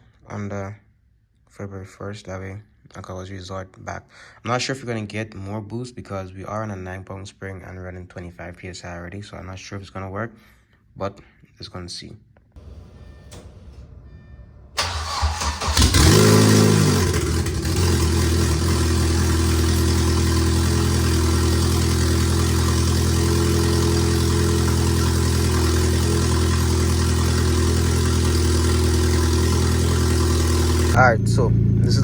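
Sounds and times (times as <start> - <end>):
car engine starting and idling: 12.6 - 32.0.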